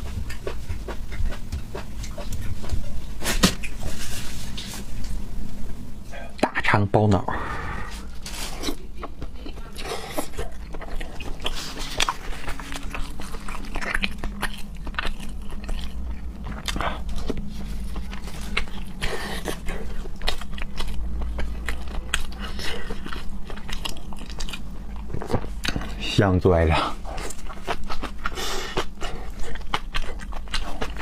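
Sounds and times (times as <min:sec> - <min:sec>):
wet chewing and crunching: 0:00.0 - 0:04.6, 0:08.2 - 0:31.0
low steady hum: 0:00.0 - 0:31.0.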